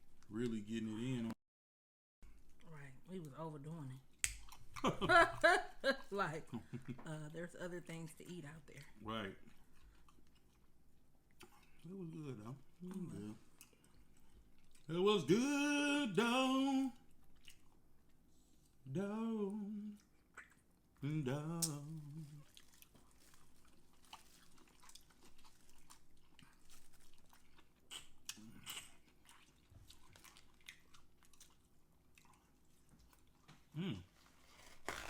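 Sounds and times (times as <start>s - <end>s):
chewing and mouth sounds: 4.0s - 4.9s, 8.8s - 15.0s, 17.0s - 18.6s, 19.8s - 34.2s
person humming mm: 11.9s - 13.4s, 21.0s - 22.4s, 33.7s - 34.1s.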